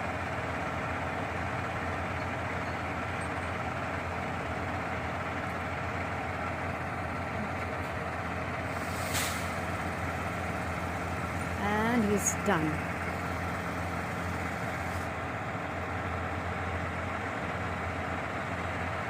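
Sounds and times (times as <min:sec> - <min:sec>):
truck engine idling: 0:00.0 - 0:19.0
brief hiss: 0:08.7 - 0:09.6.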